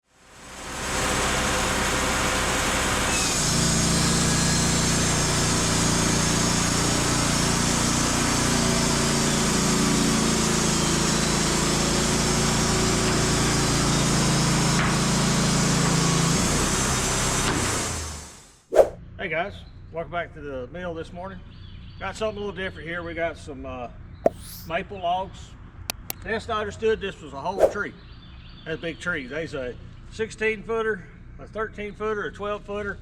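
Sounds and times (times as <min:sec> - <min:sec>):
band saw cutting log: 0:02.4 - 0:07.2.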